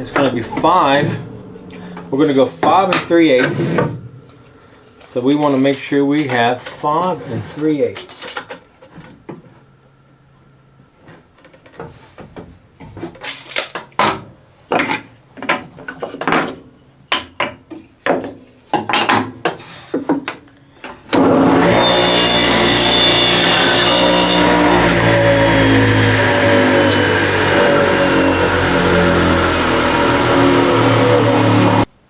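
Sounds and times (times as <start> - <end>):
electric saw cutting: 0.0 - 3.9, 21.1 - 31.9.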